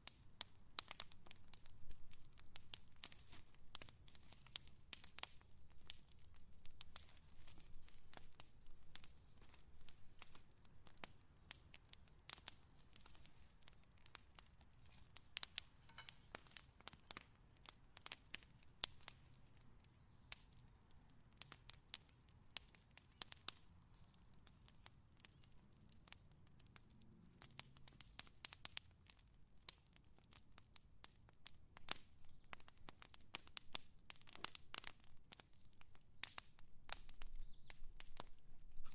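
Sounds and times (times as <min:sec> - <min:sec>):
fire crackling: 0:00.0 - 0:38.9.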